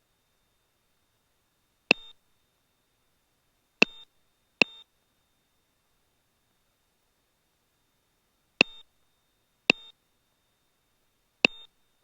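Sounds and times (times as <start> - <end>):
faint high whine: 0.0 - 12.0
electronic beeps with click: 3.8 - 4.9, 8.6 - 8.9, 9.7 - 10.0, 11.4 - 11.7.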